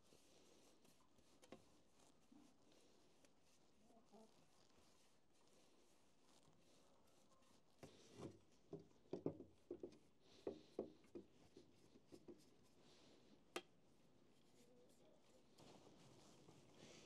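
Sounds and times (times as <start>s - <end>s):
soft knocks on wooden objects: 8.7s - 11.3s.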